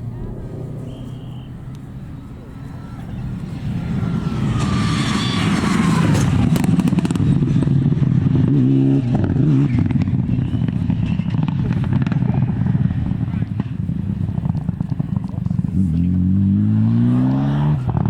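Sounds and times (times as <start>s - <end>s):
rally car engine at high revs: 3.8s - 13.7s, 14.4s - 18.0s.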